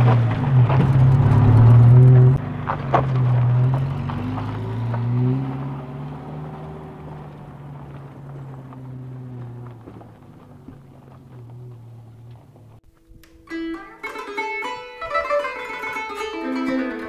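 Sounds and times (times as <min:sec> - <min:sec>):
car engine humming: 0:00.0 - 0:13.3.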